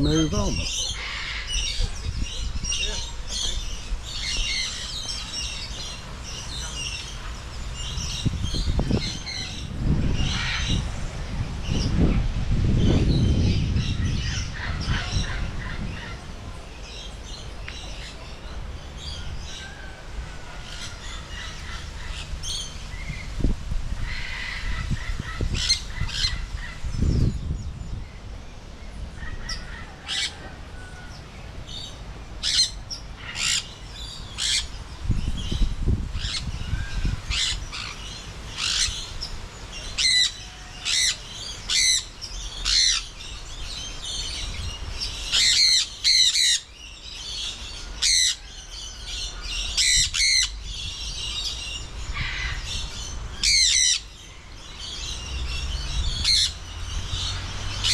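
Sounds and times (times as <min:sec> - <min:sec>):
small birds chirping: 0:00.0 - 0:12.2, 0:31.1 - 0:57.9
wind buffeting microphone: 0:00.0 - 0:17.9, 0:18.5 - 0:32.4, 0:33.4 - 0:39.6, 0:48.7 - 0:57.9.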